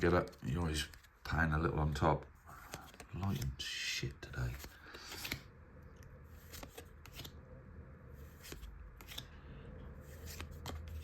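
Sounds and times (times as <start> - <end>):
trading cards clicking and rustling: 0.0 - 1.4, 2.6 - 3.7, 4.3 - 5.5, 6.3 - 7.4, 8.2 - 9.4, 10.0 - 11.0.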